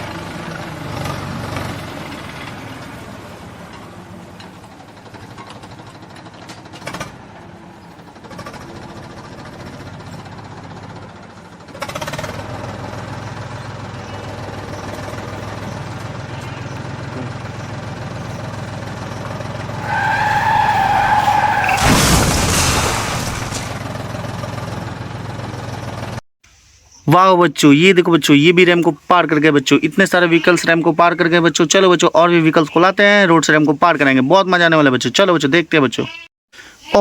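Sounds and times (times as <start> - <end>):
vehicle engine running: 0.0 - 21.3, 23.3 - 26.2.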